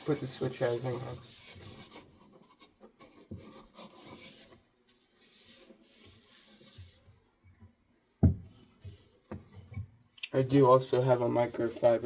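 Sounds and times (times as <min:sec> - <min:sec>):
rubbing and wiping strokes: 0:00.0 - 0:07.2, 0:10.9 - 0:12.0
soft handling knocks: 0:06.8 - 0:10.0.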